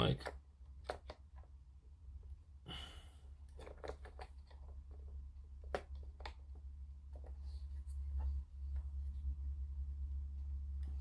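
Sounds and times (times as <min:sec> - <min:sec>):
steady low hum: 0:00.0 - 0:11.0
plastic parts clicking: 0:03.5 - 0:07.4.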